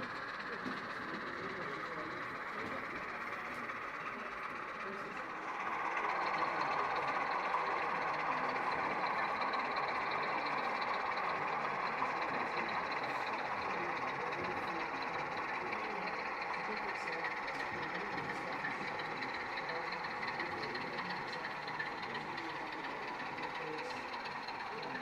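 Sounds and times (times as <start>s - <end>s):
crowd talking: 0.0s - 25.0s.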